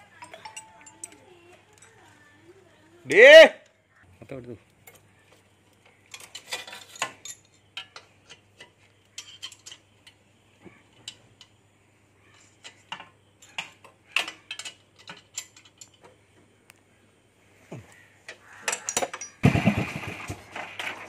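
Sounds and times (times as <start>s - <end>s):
hand tools clinking on metal: 0.0s - 2.2s, 4.8s - 10.3s, 12.3s - 16.2s, 18.3s - 19.4s.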